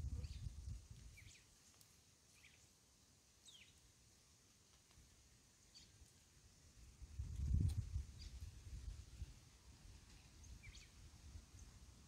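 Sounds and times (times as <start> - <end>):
faint bird chirps: 0.1 - 1.7, 2.3 - 2.8, 3.4 - 3.9, 5.6 - 6.2, 10.1 - 11.8.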